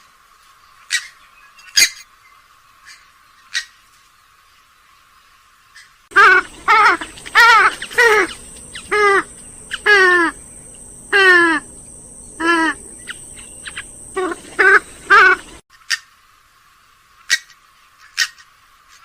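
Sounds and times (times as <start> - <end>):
swamphen calling: 5.8 - 15.6.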